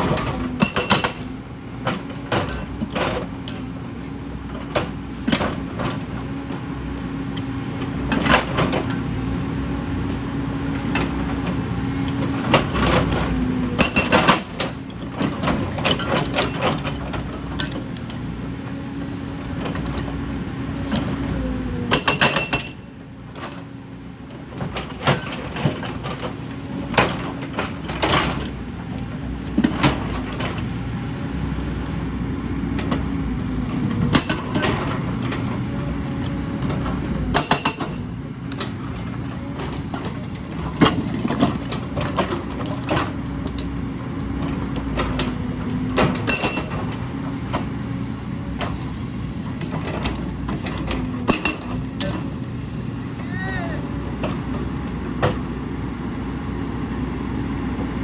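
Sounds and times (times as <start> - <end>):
machine clanks and knocks: 0.0 - 3.6, 10.1 - 18.2, 21.9 - 23.6, 24.5 - 30.9, 32.8 - 35.7, 36.6 - 43.7, 44.3 - 47.8, 49.5 - 52.4
excavator diesel engine running: 0.0 - 58.0.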